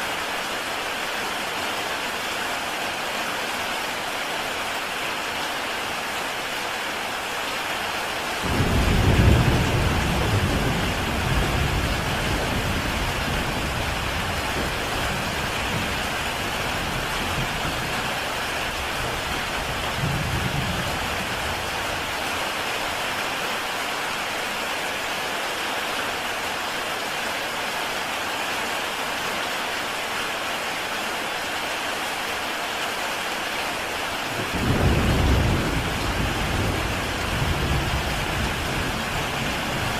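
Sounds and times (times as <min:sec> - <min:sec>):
heavy rain on a tile roof: 0:00.0 - 0:39.9
thunder rumbling: 0:08.4 - 0:22.1, 0:34.4 - 0:39.9.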